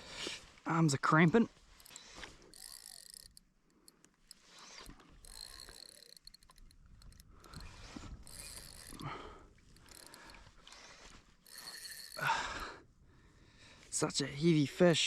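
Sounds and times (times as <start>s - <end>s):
fishing reel clicking and whirring: 1.7s - 12.8s.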